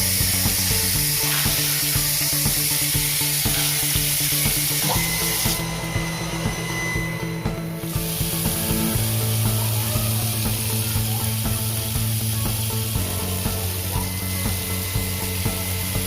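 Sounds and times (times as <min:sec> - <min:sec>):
background music with steady beat: 0:00.0 - 0:16.0
steady hiss: 0:00.0 - 0:16.0.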